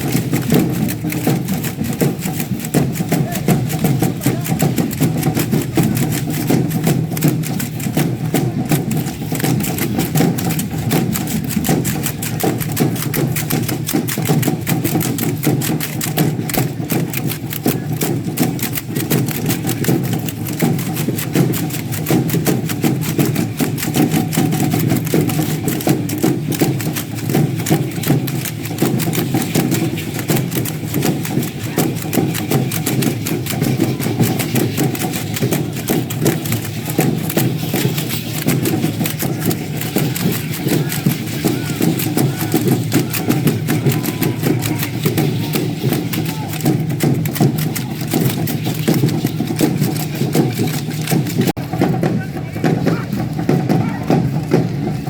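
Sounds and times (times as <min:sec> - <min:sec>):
rattles shaking: 0:00.0 - 0:55.0.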